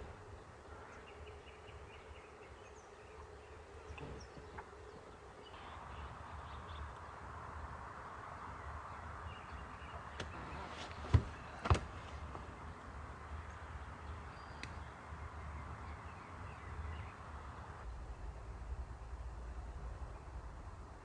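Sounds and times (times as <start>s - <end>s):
steady background hiss: 0.0s - 21.0s
sharp knocks: 11.0s - 12.0s.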